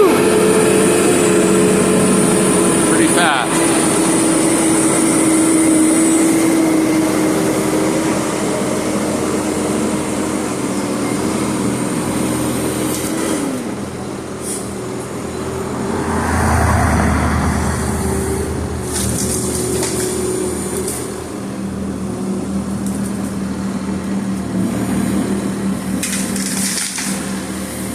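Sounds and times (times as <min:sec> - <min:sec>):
machine hum: 0:15.1 - 0:21.8
rushing machine swell: 0:15.3 - 0:20.8.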